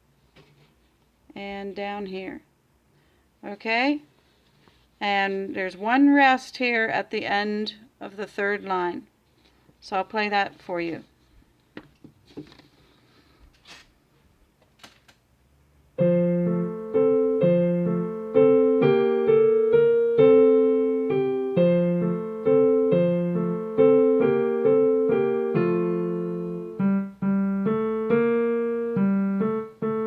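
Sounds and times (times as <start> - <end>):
piano playing: 16.0 - 30.0.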